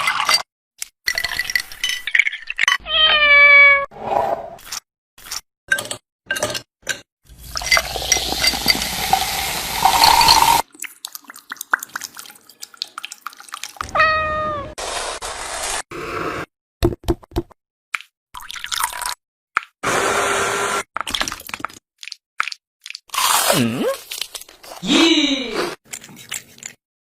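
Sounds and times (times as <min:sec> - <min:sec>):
cat meowing: 0:02.8 - 0:03.9, 0:13.8 - 0:14.8.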